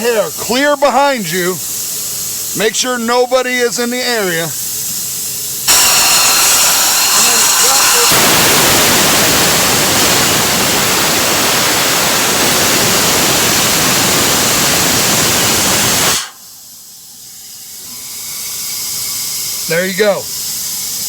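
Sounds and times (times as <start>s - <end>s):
compressed air hissing from valve: 0.0s - 21.0s.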